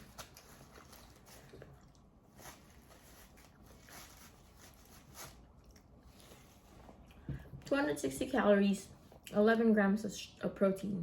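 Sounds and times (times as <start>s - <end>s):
soft rustles: 0.0s - 8.3s.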